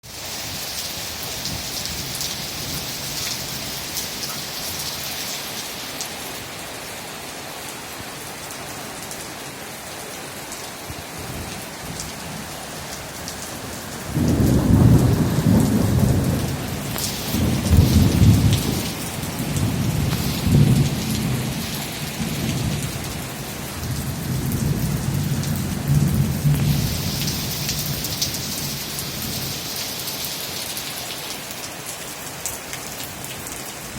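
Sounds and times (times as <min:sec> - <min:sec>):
heavy rain pouring: 0:00.0 - 0:33.9
thunder rolling: 0:14.1 - 0:23.2.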